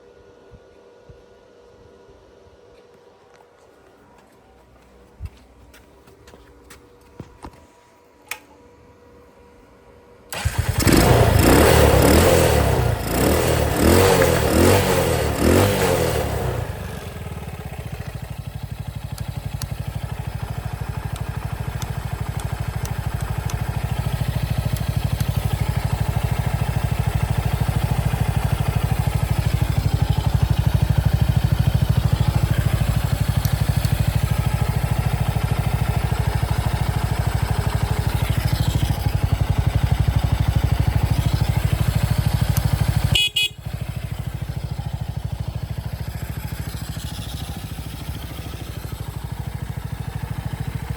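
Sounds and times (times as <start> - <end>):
motorcycle engine idling: 10.3 - 50.9.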